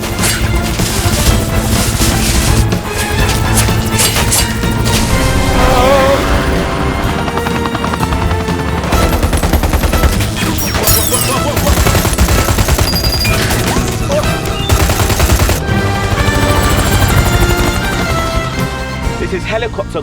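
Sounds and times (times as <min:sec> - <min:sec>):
helicopter rotor chop: 0:00.0 - 0:19.2
dramatic action film score: 0:00.0 - 0:20.0
gunfire bursts: 0:08.9 - 0:18.0.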